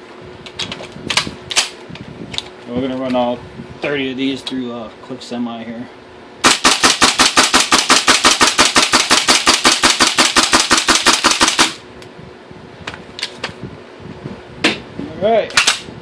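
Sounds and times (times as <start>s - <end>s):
airsoft rifle firing rapid cracks: 6.4s - 11.8s.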